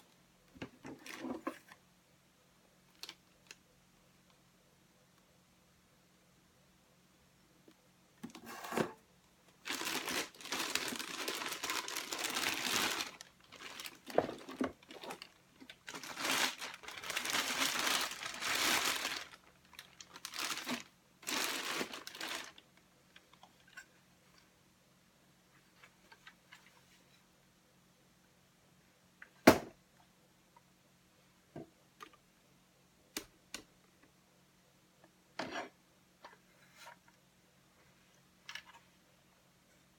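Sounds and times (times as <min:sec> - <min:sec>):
packaging crinkling: 0:09.6 - 0:22.6.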